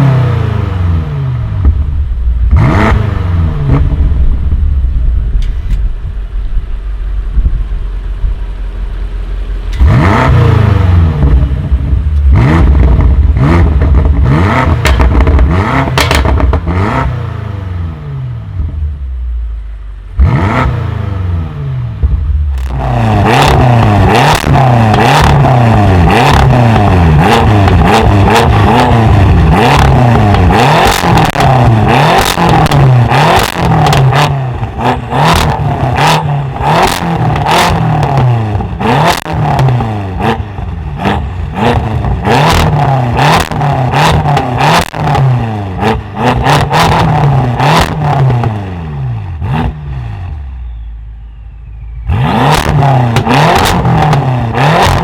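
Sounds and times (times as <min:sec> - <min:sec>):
car engine revving: 0:00.0 - 0:50.8, 0:51.8 - 0:55.0
exhaust pops and cracks: 0:14.8 - 0:16.6.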